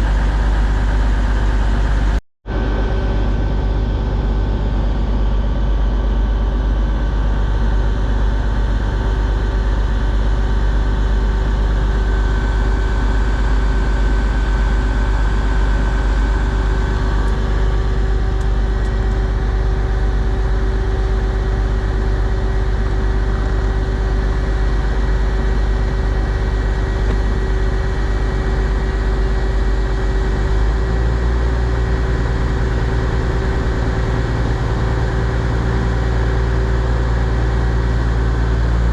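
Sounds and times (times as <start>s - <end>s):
train engines idling: 21.0s - 38.9s.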